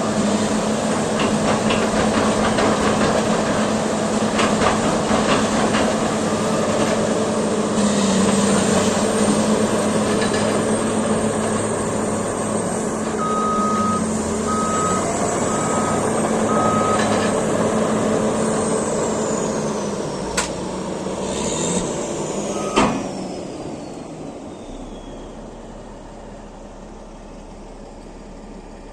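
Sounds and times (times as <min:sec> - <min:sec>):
bulldozer diesel engine running: 0:00.0 - 0:28.9
backup alarm beeps: 0:13.2 - 0:17.0, 0:22.6 - 0:22.9.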